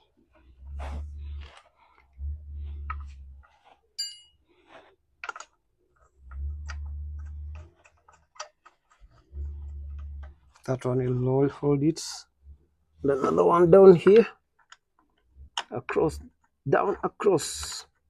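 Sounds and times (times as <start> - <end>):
dull low rumbles: 2.1 - 3.4, 6.2 - 7.6, 9.1 - 11.8.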